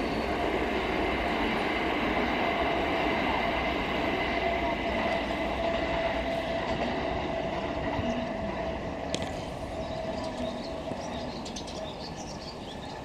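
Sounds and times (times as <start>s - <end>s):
electric train rumble and whine: 0.0s - 13.0s
birds chirping: 7.6s - 13.0s.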